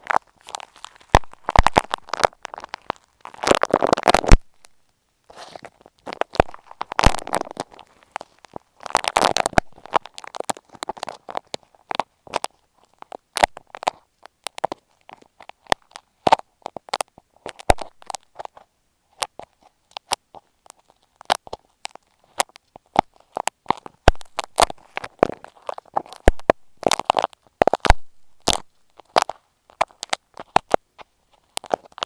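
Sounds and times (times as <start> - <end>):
scratching and clicks on microphone: 0.0 - 32.0.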